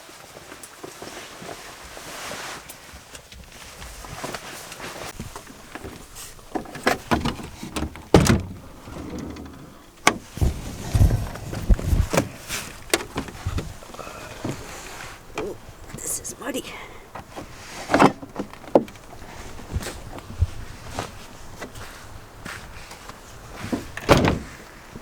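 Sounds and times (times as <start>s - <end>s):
van door clicks and knocks: 6.8s - 8.6s.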